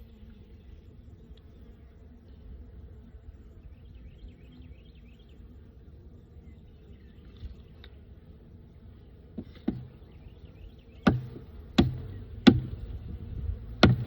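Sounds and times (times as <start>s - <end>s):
hive tool knocking on wood: 9.4s - 10.3s, 11.0s - 14.0s.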